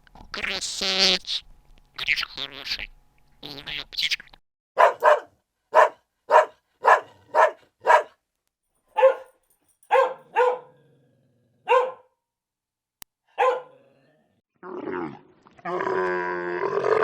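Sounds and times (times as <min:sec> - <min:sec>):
dog barking: 0:04.8 - 0:08.2, 0:08.9 - 0:10.8, 0:11.6 - 0:12.2, 0:13.3 - 0:13.8.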